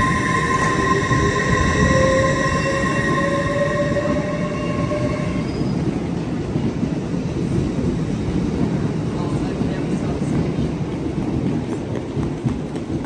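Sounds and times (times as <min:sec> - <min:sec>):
high whine: 0:00.0 - 0:05.7
train low rumble: 0:00.0 - 0:13.0.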